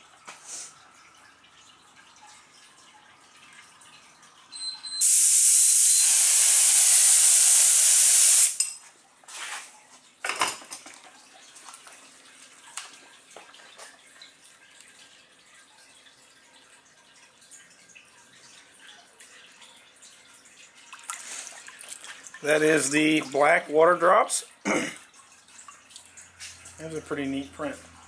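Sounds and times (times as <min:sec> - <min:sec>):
faint dripping water: 0:00.0 - 0:05.0, 0:08.7 - 0:28.0
air spray gun hissing: 0:05.0 - 0:08.6.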